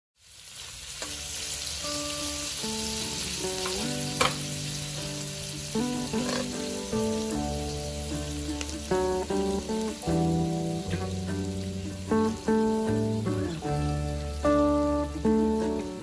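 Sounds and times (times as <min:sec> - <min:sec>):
shrimp sizzling in hot oil: 0:00.2 - 0:16.0
plucked-string background music: 0:01.0 - 0:16.0.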